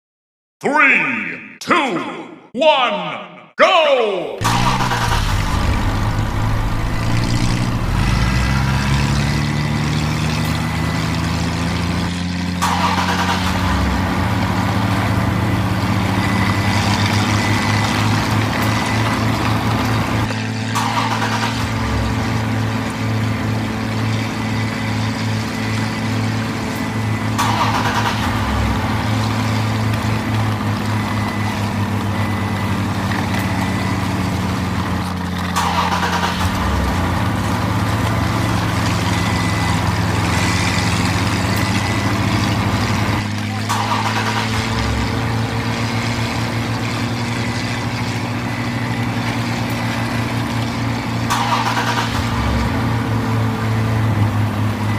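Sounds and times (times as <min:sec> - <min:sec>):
brief rush of noise: 0:04.4 - 0:09.0
vehicle engine humming: 0:04.4 - 0:54.9.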